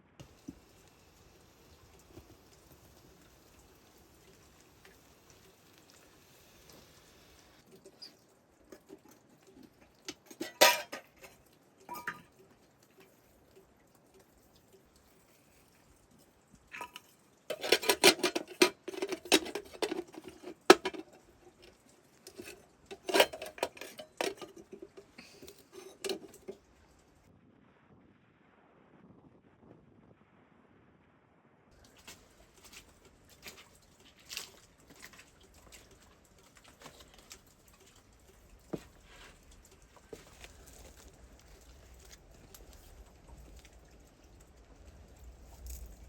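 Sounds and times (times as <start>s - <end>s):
pots and dishes clattering: 10.0s - 12.4s, 16.7s - 26.6s
pot ringing: 10.3s - 11.1s, 11.9s - 12.3s, 22.3s - 26.6s.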